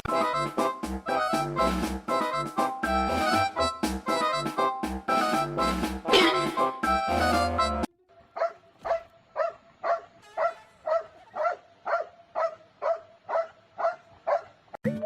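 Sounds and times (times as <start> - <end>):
dog barking: 8.3 - 14.6.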